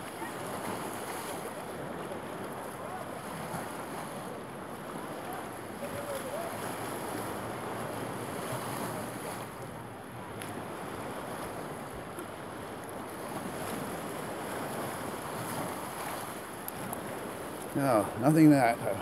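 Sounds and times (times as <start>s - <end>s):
lake waves: 0.0s - 19.0s.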